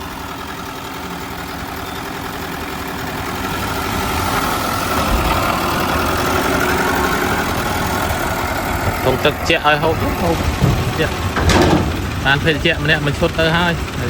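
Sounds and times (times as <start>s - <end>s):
heavy diesel engine running: 0.0s - 14.0s
machinery whine: 0.0s - 14.0s.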